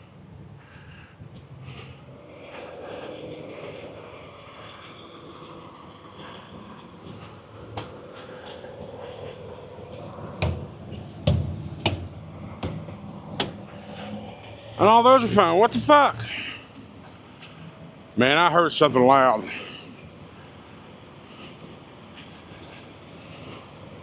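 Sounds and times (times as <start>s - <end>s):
steady low hum: 0.0s - 24.0s
knocks on truck tires: 10.4s - 13.6s.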